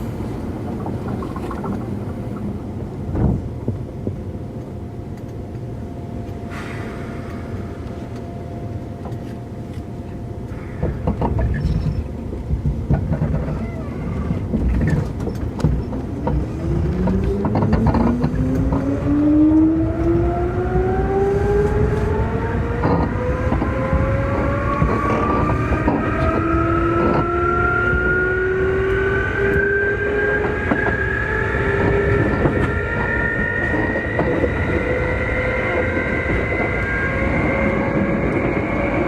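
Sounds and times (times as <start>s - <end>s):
train clatter: 0.0s - 39.0s
train low rumble: 0.0s - 39.0s
traction motor whine rising: 15.9s - 39.0s.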